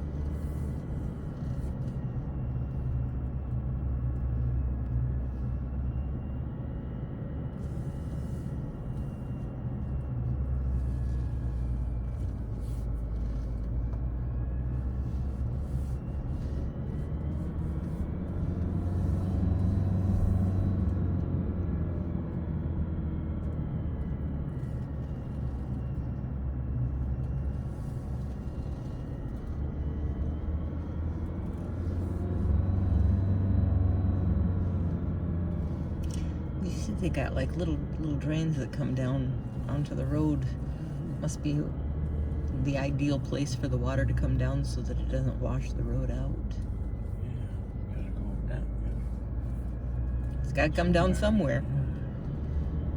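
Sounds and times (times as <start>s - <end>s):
car engine hum: 0.0s - 52.9s.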